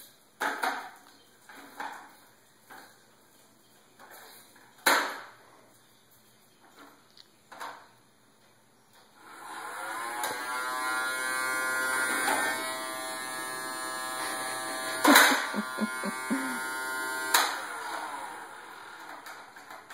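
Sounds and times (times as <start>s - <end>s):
vacuum cleaner motor whining: 9.3s - 19.3s.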